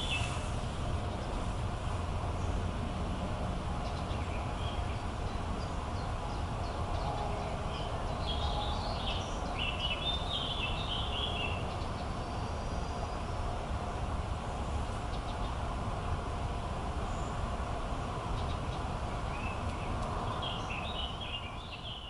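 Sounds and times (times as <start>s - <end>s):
small birds chirping: 0.0s - 1.6s, 3.8s - 13.4s, 18.3s - 22.0s.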